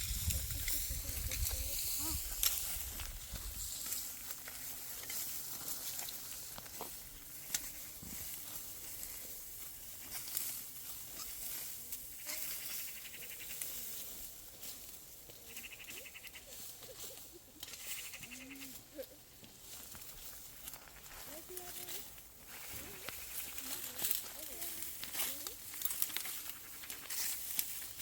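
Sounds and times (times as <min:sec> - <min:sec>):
goats bleating: 0:17.8 - 0:19.1.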